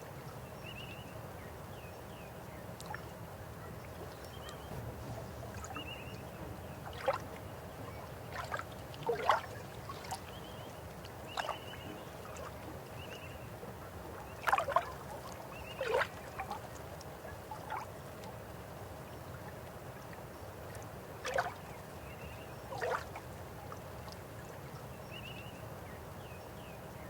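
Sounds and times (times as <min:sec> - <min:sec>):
river water flowing: 0:02.4 - 0:25.0
water gurgles and splashes: 0:06.8 - 0:18.2, 0:21.2 - 0:21.7, 0:22.7 - 0:23.4.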